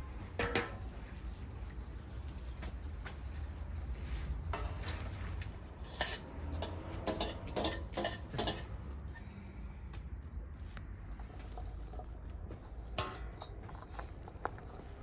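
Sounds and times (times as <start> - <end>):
metal utensils scraping a pot: 4.6 - 8.9, 11.2 - 15.0.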